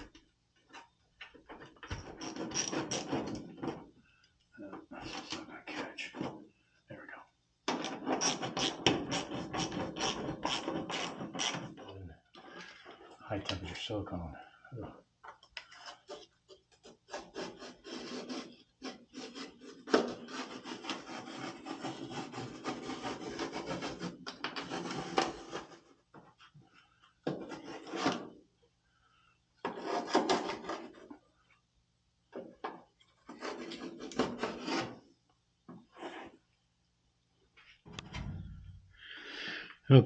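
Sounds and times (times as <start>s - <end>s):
hand scraping a surface: 15.6s - 28.4s, 33.2s - 35.0s.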